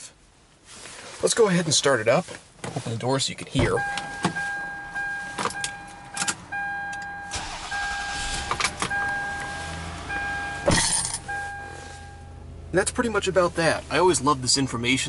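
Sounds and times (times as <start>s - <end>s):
car warning chime: 3.6s - 12.5s
car engine cranking and idling: 3.6s - 15.0s
loud thump: 10.6s - 11.0s.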